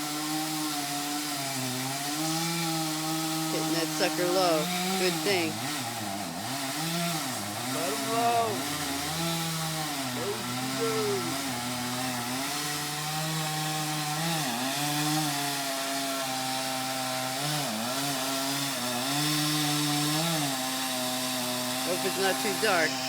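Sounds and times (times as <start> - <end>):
chainsaw cutting wood: 0.0 - 23.0.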